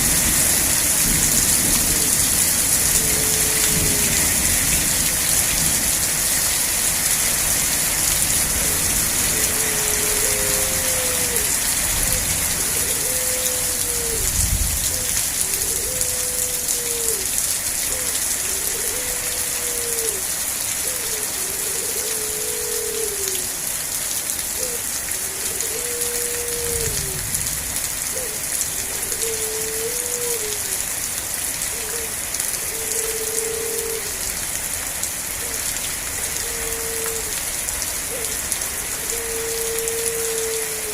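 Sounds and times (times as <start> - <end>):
steady rain: 0.0 - 40.9
low pitched call: 8.6 - 14.3.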